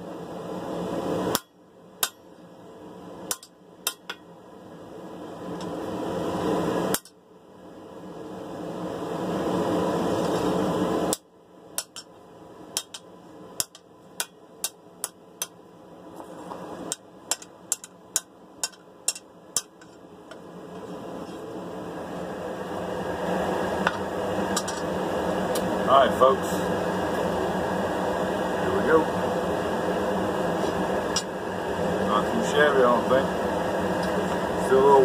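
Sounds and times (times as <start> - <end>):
hammer striking steel blade: 1.3 - 2.3, 3.3 - 4.3, 6.9 - 7.2, 11.8 - 12.1, 12.8 - 15.6
steady rushing noise: 18.6 - 35.0.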